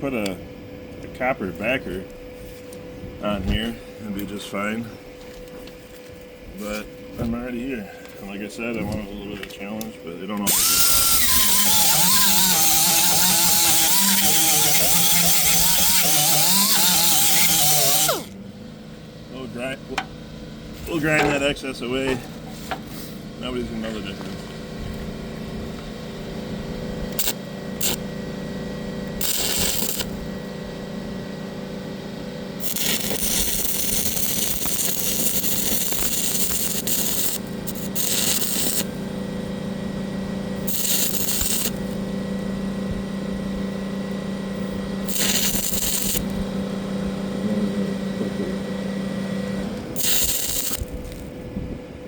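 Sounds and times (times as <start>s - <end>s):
machine hum: 0.0s - 52.0s
welding arc crackling: 10.5s - 18.4s, 27.1s - 28.0s, 29.0s - 30.3s, 32.6s - 39.1s, 40.6s - 42.1s, 44.6s - 46.5s, 50.0s - 51.3s.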